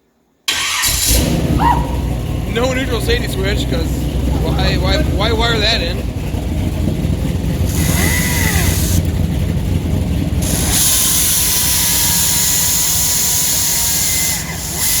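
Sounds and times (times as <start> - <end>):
car engine running: 0.5 - 15.0
cutting tool scraping metal: 10.4 - 15.0.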